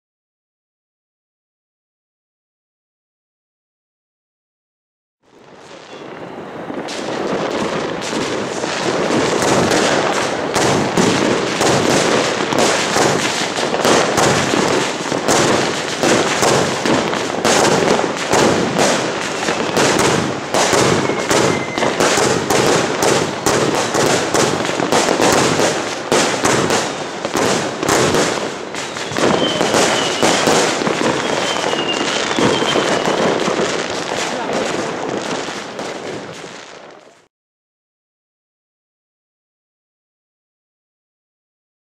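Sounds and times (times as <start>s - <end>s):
fireworks cake firing: 5.3s - 37.3s.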